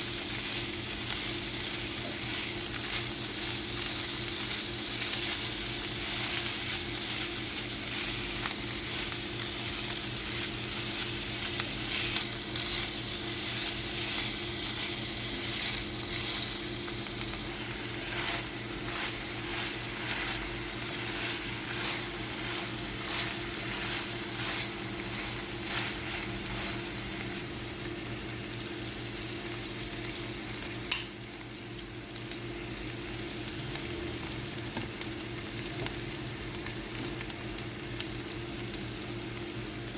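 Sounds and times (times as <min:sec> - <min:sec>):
food sizzling in oil: 0:00.0 - 0:39.9
spatula scraping pan: 0:11.4 - 0:27.2.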